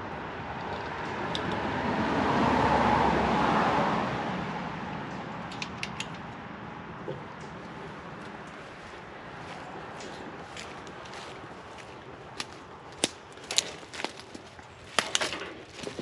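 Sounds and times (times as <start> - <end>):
vehicle passing by: 0.0 - 5.6.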